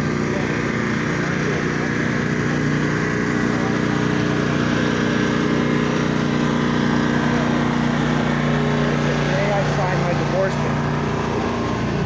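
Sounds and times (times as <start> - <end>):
small engine humming: 0.0 - 12.0.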